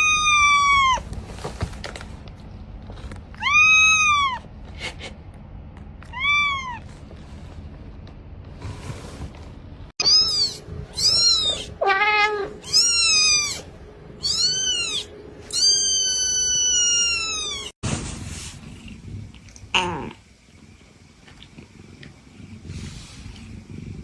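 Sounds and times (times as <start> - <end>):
cat meowing: 10.0 - 17.7.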